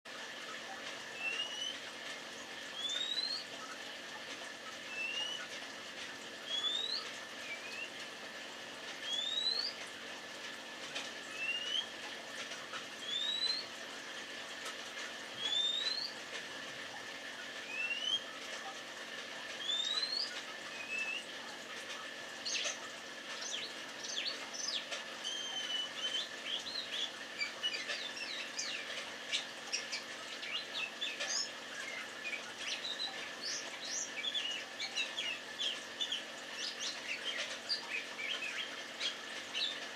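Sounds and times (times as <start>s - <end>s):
rapid varied birdsong: 2.7s - 3.5s, 6.5s - 8.0s, 9.0s - 9.8s, 13.0s - 13.7s, 15.4s - 16.2s, 19.6s - 21.3s, 23.4s - 39.9s.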